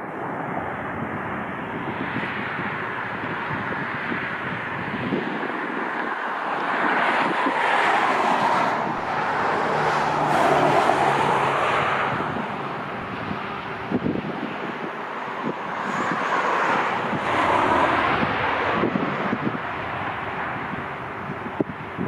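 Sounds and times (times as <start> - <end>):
vehicle passing by: 6.6 - 21.4.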